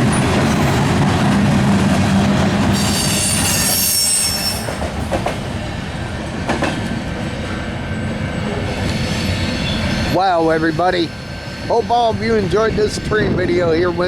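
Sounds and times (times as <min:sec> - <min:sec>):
train cars rumbling past: 0:00.0 - 0:14.0
train wheels squealing: 0:02.7 - 0:05.0, 0:08.3 - 0:12.5.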